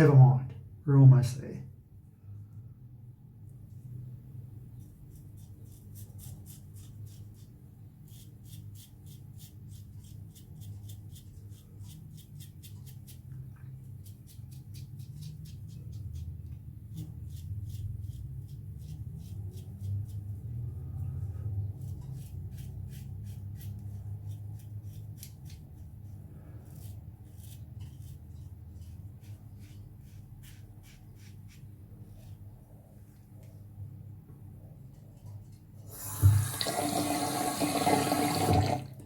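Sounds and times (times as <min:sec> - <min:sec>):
low steady hum: 0:00.0 - 0:39.0
razor scraping stubble: 0:04.8 - 0:13.3, 0:21.8 - 0:26.0, 0:26.6 - 0:31.6.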